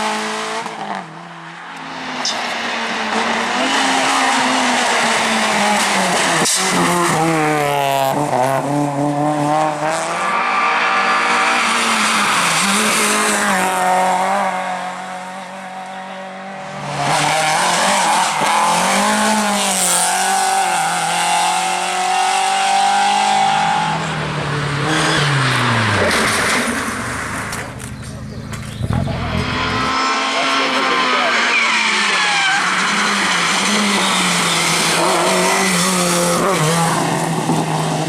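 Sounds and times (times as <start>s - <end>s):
rally car engine revving: 0.0s - 38.0s
tyres squealing and skidding: 10.0s - 13.6s, 28.0s - 38.0s.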